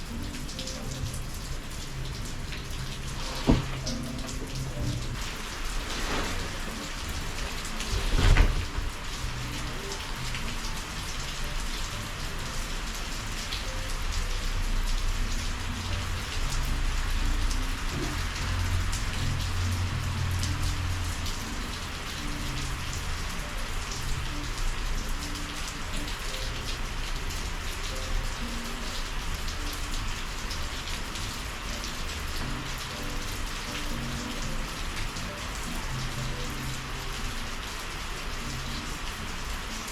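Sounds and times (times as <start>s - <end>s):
heavy rain drops splashing: 0.0s - 39.9s.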